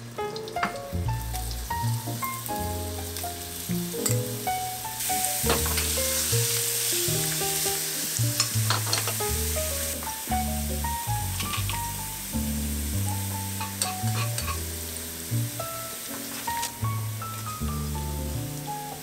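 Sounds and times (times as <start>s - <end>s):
background music: 0.0s - 19.0s
food sizzling in oil: 0.1s - 19.0s
utensil clicking against pan: 8.3s - 9.3s, 13.6s - 14.6s.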